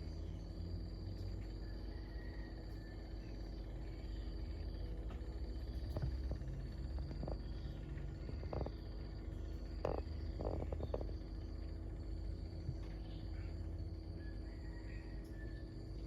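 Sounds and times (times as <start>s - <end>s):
insects trilling: 0.0s - 16.0s
low steady rumble: 0.0s - 16.0s.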